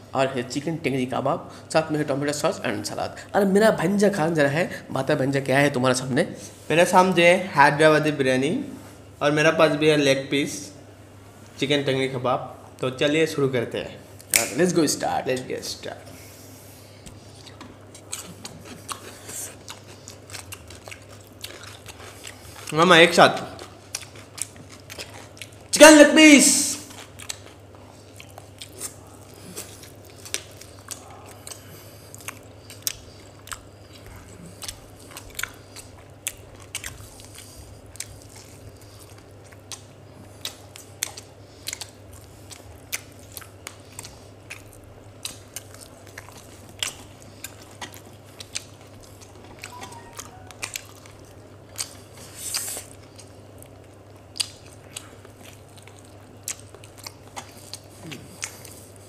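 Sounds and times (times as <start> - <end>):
steady low hum: 0.0 - 59.0
people chewing meat: 16.0 - 25.7, 26.8 - 59.0.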